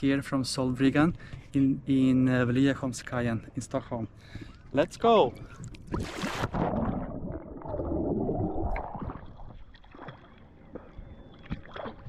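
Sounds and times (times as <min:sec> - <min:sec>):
water splashing: 0:05.7 - 0:12.0
water lapping: 0:08.5 - 0:12.0.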